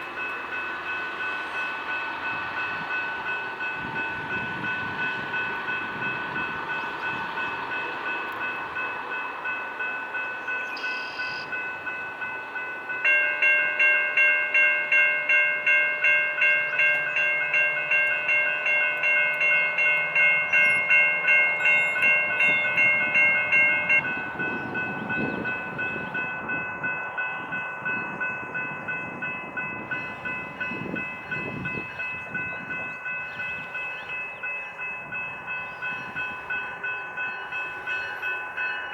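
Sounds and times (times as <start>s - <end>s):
crossing warning bells ringing: 0.0s - 38.9s
freight train passing: 0.0s - 38.9s
louder bell ringing: 13.1s - 38.9s.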